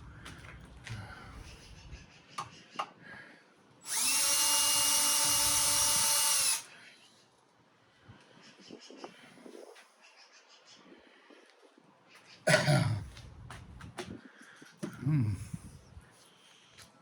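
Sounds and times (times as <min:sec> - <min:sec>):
power drill running: 0:03.8 - 0:06.7.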